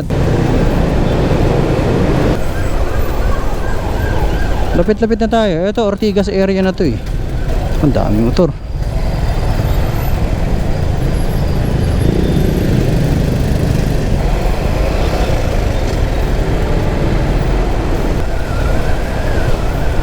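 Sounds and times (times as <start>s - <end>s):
motorcycle engine rumble: 0.0s - 20.0s
surrounding traffic: 0.0s - 20.0s.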